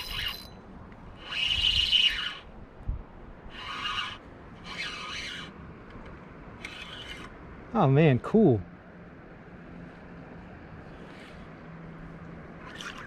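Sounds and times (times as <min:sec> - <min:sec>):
fishing reel whirring: 0:00.0 - 0:00.5, 0:01.2 - 0:02.5, 0:03.5 - 0:05.5, 0:06.6 - 0:07.3, 0:12.6 - 0:13.0.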